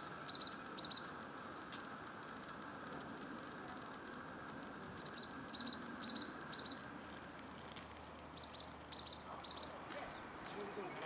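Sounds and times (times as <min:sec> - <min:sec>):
songbird high chirps: 0:00.0 - 0:01.4, 0:04.9 - 0:07.1, 0:08.3 - 0:11.0
faint background hiss: 0:00.0 - 0:11.0.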